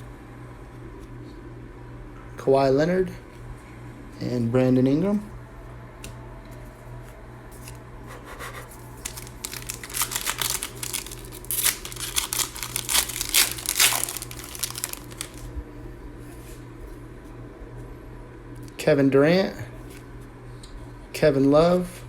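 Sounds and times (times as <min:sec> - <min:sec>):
low electrical hum: 0:00.0 - 0:22.0
wrapper tearing and crinkling: 0:09.0 - 0:15.5.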